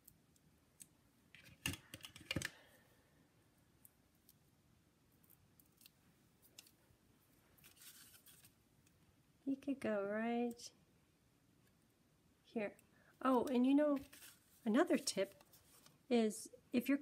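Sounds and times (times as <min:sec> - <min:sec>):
faint paper handling: 0:07.6 - 0:08.6, 0:13.2 - 0:16.0.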